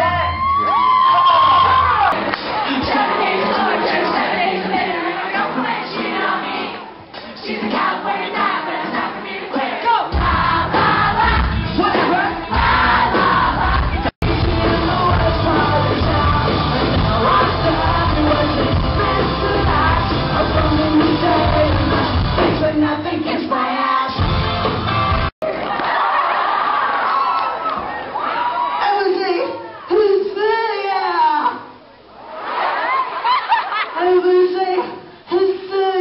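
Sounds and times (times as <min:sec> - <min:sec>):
live band with singer: 0:09.5 - 0:25.3.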